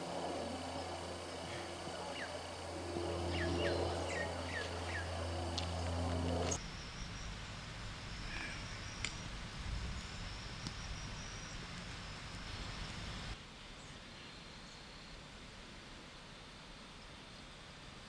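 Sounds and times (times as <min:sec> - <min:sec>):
high insect drone: 0:00.0 - 0:13.4.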